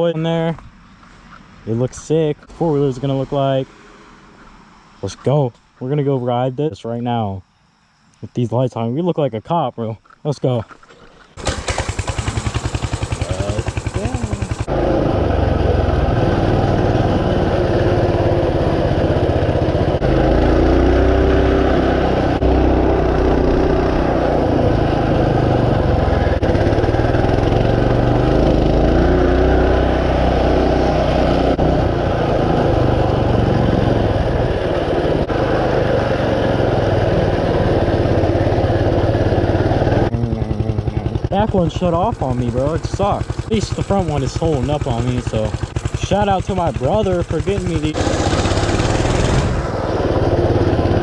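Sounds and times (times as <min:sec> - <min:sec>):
mini bike engine revving: 0:11.4 - 0:51.0.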